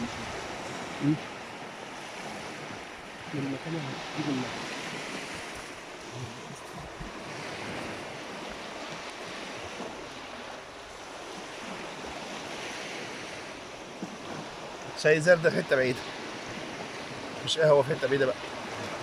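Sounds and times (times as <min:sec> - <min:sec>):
wind on microphone: 0:00.0 - 0:14.8
sea waves washing on shore: 0:00.0 - 0:19.0.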